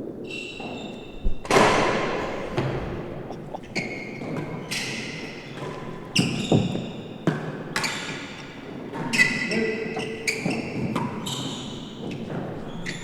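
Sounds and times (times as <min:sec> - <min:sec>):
ball knocking off walls and floor: 0:00.6 - 0:03.7
tennis ball struck by rackets: 0:01.3 - 0:03.7.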